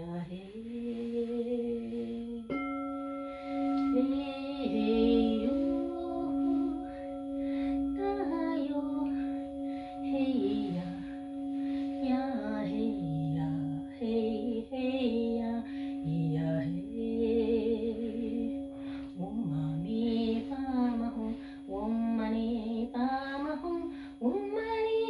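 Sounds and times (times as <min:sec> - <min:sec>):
singing bowls ringing drone: 0:00.0 - 0:25.0
woman singing a chant: 0:00.0 - 0:25.0.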